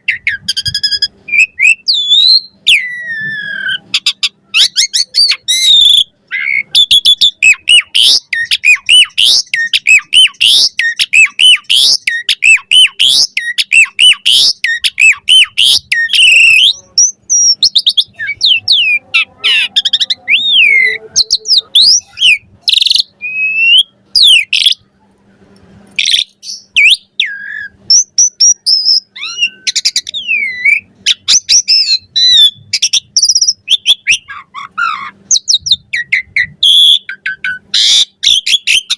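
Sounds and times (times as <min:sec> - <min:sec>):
starling chattering song: 0:00.0 - 0:25.2, 0:26.0 - 0:38.9.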